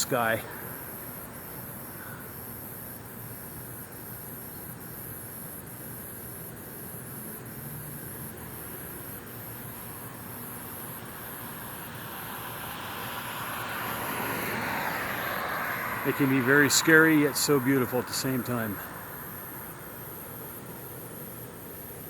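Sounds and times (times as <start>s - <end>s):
distant traffic hum: 0.0s - 22.0s
insects trilling: 0.0s - 22.0s
vehicle approaching: 10.9s - 20.3s.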